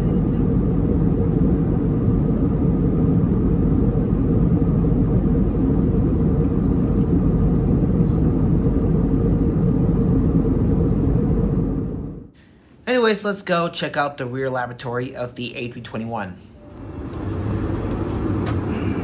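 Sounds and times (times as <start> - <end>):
airplane engines droning: 0.0 - 19.0
faint steady hum: 0.0 - 19.0
air rushing past fuselage: 16.5 - 19.0.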